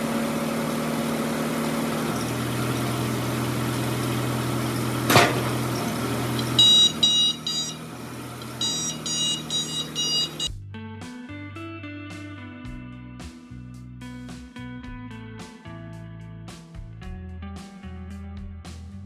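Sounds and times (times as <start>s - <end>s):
motor humming: 0.0s - 10.5s
short high electronic beeps: 6.4s - 7.8s, 8.5s - 10.5s.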